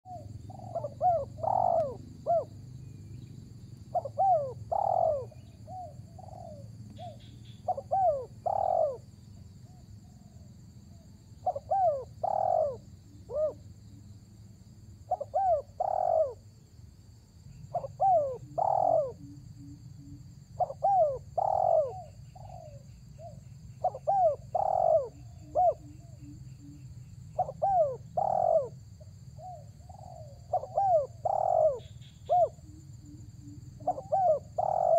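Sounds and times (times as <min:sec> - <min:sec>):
dove cooing: 0:00.1 - 0:02.7, 0:03.9 - 0:09.0, 0:11.4 - 0:13.6, 0:15.1 - 0:16.4, 0:17.6 - 0:26.8, 0:27.4 - 0:34.9.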